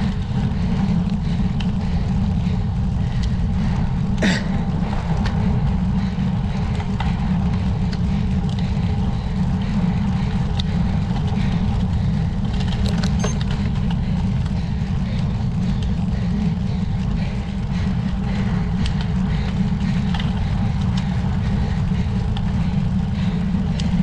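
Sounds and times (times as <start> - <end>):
faint ticks: 0.0 - 3.8, 18.3 - 21.5, 23.3 - 24.0
road rumble: 0.0 - 24.0.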